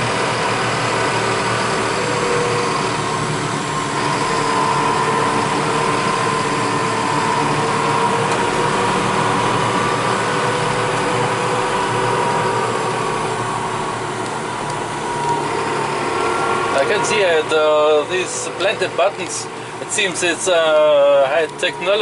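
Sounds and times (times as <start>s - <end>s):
constant whine: 0.0s - 22.0s
tractor engine running: 0.0s - 22.0s.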